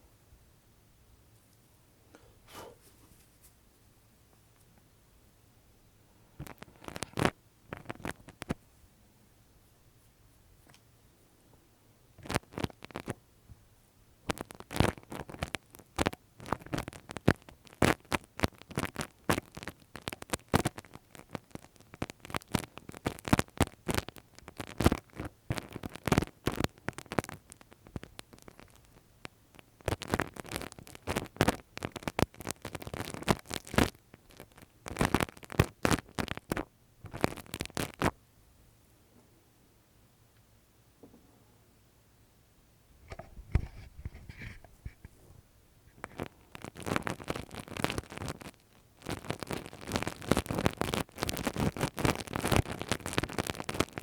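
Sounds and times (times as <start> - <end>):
tool scratching microphone: 43.1 - 45.2.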